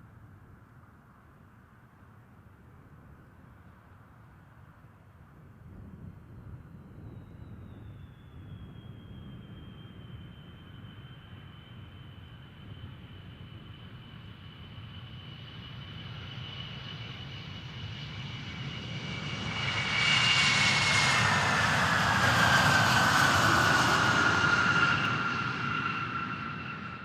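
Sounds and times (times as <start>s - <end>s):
jet aircraft flying past: 6.4s - 27.0s.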